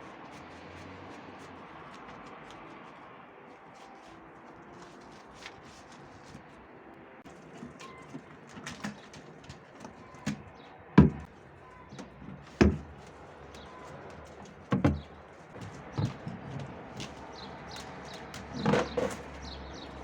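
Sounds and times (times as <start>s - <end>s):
objects knocking and thumping: 7.3s - 20.0s.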